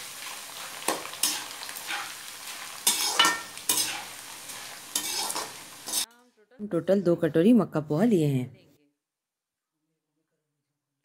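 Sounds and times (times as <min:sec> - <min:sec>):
flakes sizzling in hot oil: 0:00.0 - 0:06.1
ladle scraping and stirring: 0:00.6 - 0:06.1.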